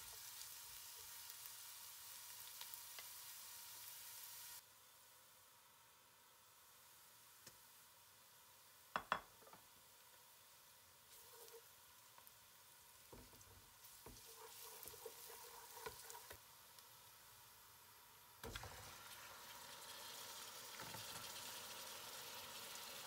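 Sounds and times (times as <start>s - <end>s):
onions frying in a pot: 0.0s - 23.0s
wooden spatula scraping a pot: 11.1s - 11.7s, 13.2s - 16.4s.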